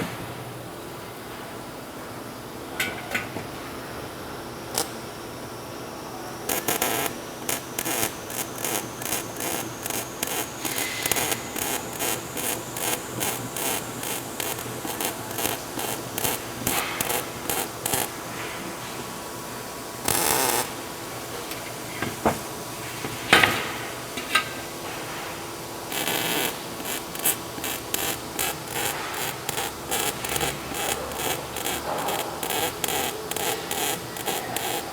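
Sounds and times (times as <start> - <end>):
short rasping burst: 6.5 - 18.1, 25.9 - 34.9.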